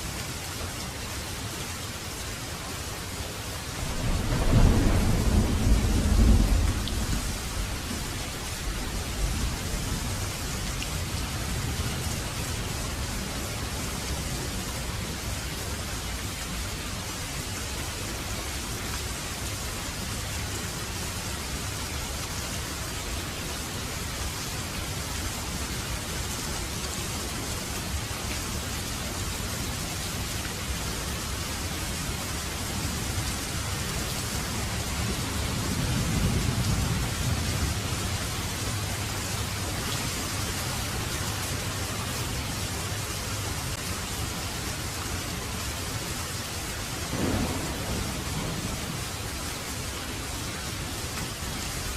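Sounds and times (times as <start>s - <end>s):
heavy rain falling: 0.0s - 51.9s
low rumble of thunder: 3.7s - 13.4s, 32.6s - 39.6s, 47.1s - 51.6s.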